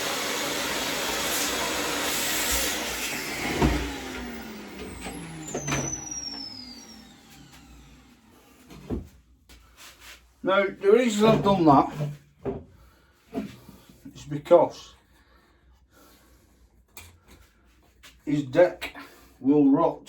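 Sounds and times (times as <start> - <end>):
power tool running: 0.0 - 9.0.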